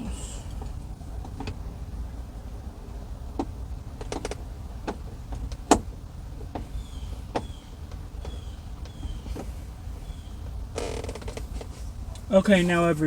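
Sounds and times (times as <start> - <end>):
car door parts clicking and knocking: 3.3 - 9.6.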